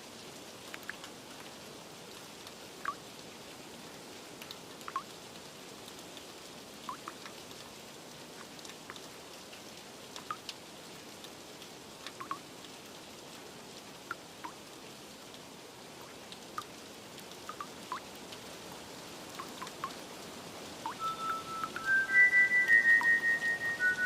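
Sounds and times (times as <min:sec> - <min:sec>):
steady rain: 0:00.0 - 0:24.0
water drips plinking: 0:00.7 - 0:01.1, 0:02.8 - 0:03.0, 0:04.8 - 0:05.1, 0:06.8 - 0:07.4, 0:10.2 - 0:10.6, 0:12.0 - 0:12.5, 0:16.0 - 0:16.7, 0:17.3 - 0:18.2, 0:19.3 - 0:20.0, 0:20.8 - 0:24.0
soft ambient music: 0:20.9 - 0:24.0.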